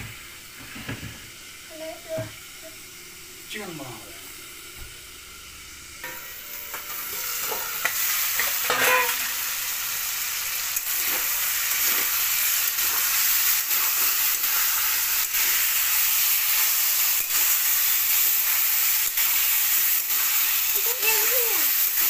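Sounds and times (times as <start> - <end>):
chicken sizzling in oil: 0.0 - 22.0
metal spatula scraping a pan: 6.0 - 9.3.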